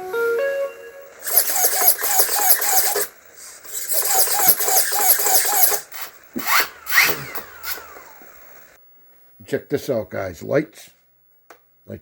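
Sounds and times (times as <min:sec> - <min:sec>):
short whines rising in pitch: 0:00.8 - 0:08.8
small electric motors whirring: 0:01.2 - 0:08.7.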